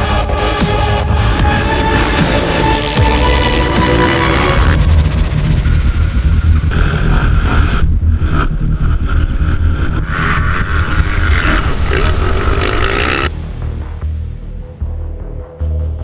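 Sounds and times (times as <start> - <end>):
music with heavy low beat: 0.0 - 16.0
motorbike engines revving: 0.8 - 5.6, 6.6 - 13.3.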